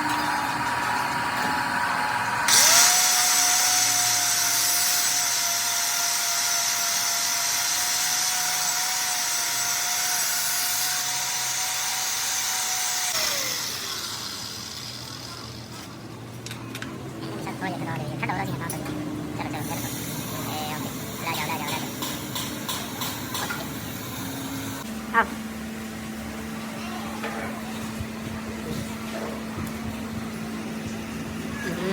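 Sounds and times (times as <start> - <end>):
electric power tool whining: 0.0 - 16.0.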